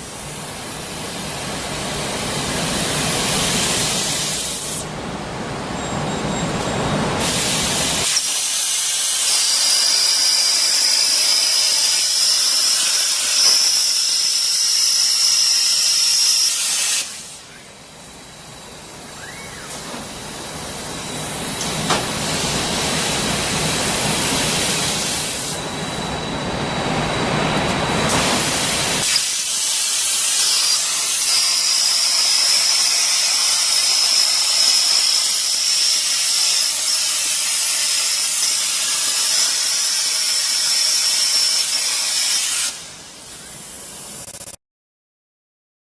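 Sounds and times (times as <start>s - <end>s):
plasma cutting torch hissing: 0.0s - 4.9s, 7.2s - 25.8s, 28.1s - 44.6s
high whine: 4.8s - 8.0s, 17.4s - 29.0s.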